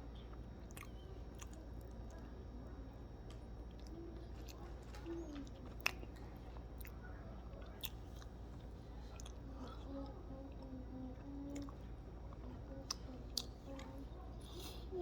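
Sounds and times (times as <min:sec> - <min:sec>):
person chewing food: 0:03.6 - 0:09.9, 0:11.5 - 0:14.9.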